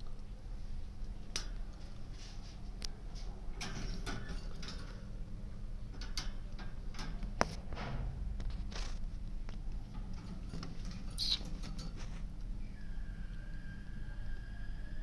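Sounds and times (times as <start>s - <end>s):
low hum: 4.6s - 15.0s
birds clicking in wire cage: 9.9s - 12.0s.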